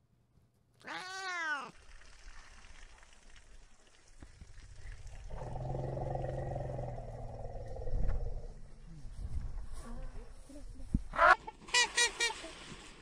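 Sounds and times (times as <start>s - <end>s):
cat meowing: 0.8s - 1.7s.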